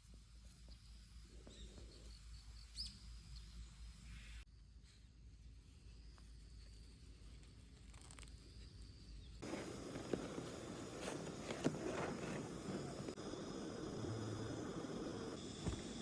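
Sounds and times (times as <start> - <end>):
campfire crackling and popping: 9.4 - 16.0.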